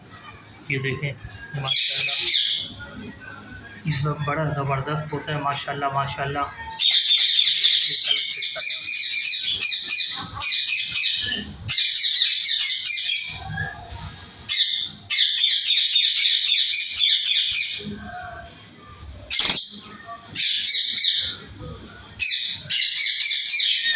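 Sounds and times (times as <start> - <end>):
small parrots chirping and chattering: 1.5 - 3.1, 6.5 - 18.0, 19.3 - 21.6, 22.2 - 23.9.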